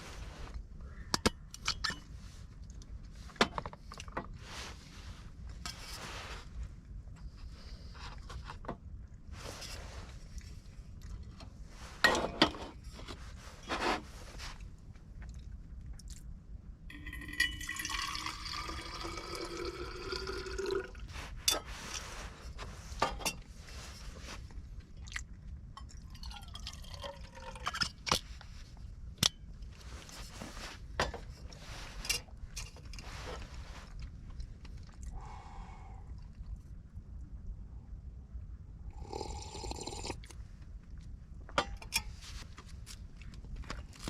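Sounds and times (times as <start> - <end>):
liquid pouring into container: 16.9 - 21.1, 26.1 - 27.8.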